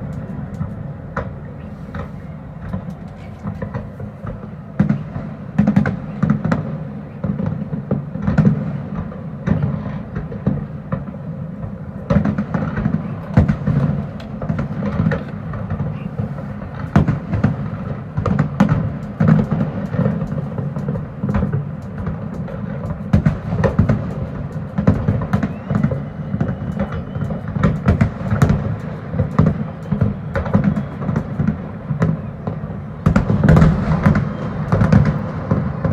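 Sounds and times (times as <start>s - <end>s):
steady low background noise: 0.0s - 9.4s
fireworks bangs and crackles: 0.0s - 35.9s.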